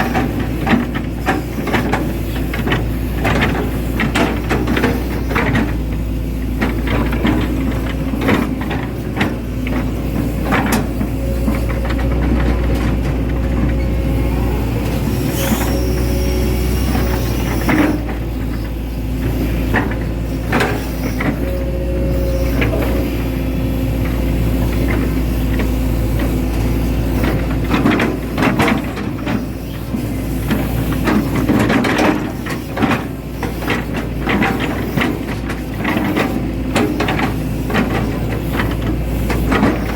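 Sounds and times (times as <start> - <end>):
excavator diesel engine running: 0.0 - 39.9
hydraulic whines: 8.1 - 27.6
machine clanks and knocks: 30.5 - 39.9.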